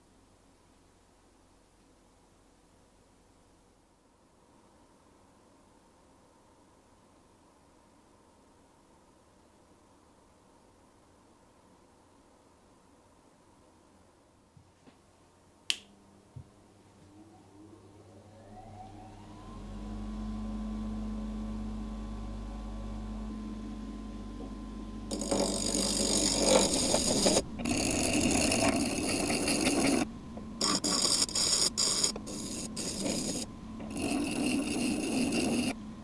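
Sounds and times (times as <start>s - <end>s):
bench grinder motor whining: 17.1s - 36.0s
workpiece rasping on grinding wheel: 25.1s - 35.8s.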